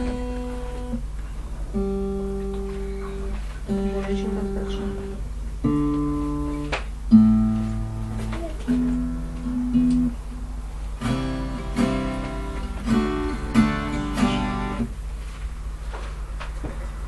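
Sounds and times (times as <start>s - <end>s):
acoustic guitar strummed: 0.0s - 15.0s
steady low hum: 0.0s - 17.0s.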